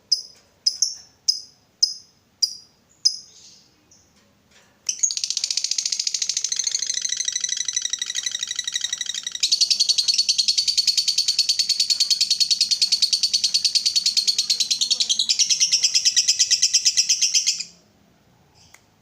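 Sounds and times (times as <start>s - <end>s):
lovebird chattering trill: 4.9s - 17.8s.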